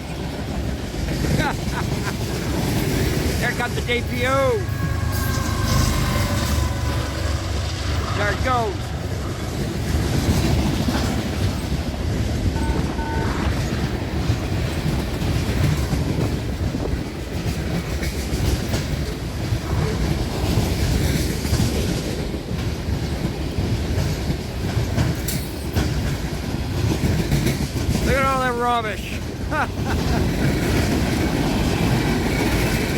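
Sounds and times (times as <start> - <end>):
freight train wheels rumbling: 0.0 - 32.9.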